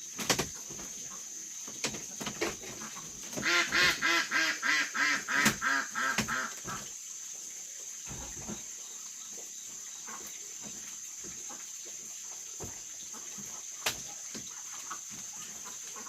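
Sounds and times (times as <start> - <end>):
duck quacking: 2.9 - 6.5.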